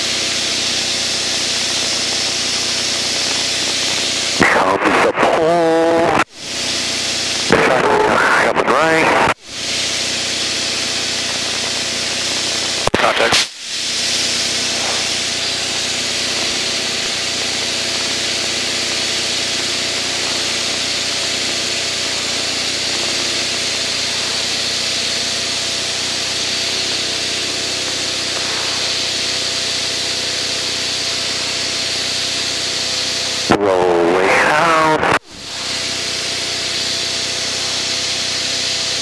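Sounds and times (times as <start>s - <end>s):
aircraft engine drone: 0.0s - 39.0s
rushing airflow hiss: 8.9s - 33.1s.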